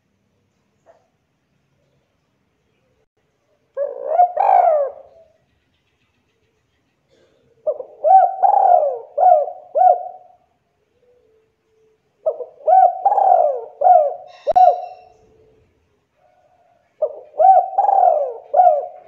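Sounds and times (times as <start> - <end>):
dove cooing: 3.8 - 5.4, 7.1 - 11.5, 12.2 - 15.8, 16.4 - 19.0.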